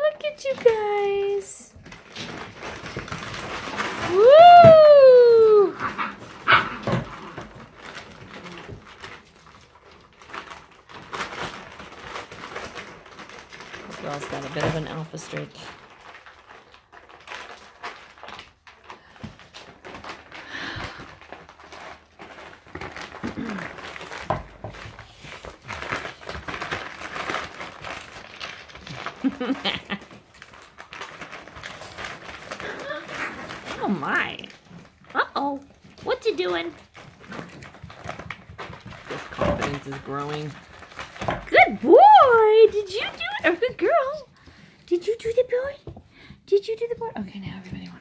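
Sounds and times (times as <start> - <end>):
puppies crinkling and rustling: 0.0 - 48.0.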